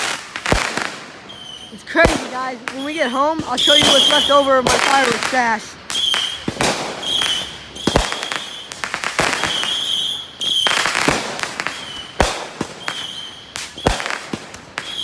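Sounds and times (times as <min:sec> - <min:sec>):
fireworks bangs: 0:00.0 - 0:15.0
fireworks crackling: 0:00.0 - 0:15.0
high whistles: 0:01.3 - 0:11.0, 0:11.7 - 0:12.2, 0:12.8 - 0:14.1.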